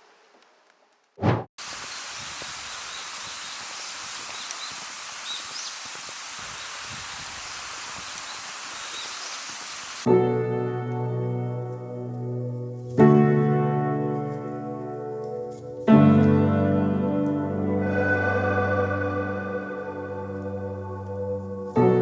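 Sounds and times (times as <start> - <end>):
waterfall rushing: 1.6 - 10.1
faint bird chirps: 1.9 - 9.7.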